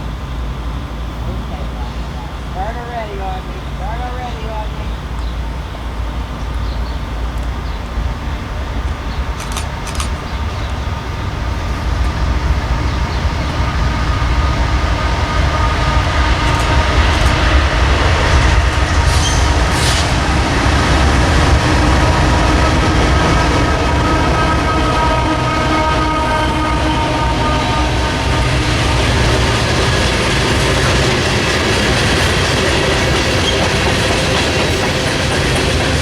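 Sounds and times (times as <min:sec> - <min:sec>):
train rumbling by: 0:00.0 - 0:36.0
sharp clicks: 0:09.3 - 0:10.4.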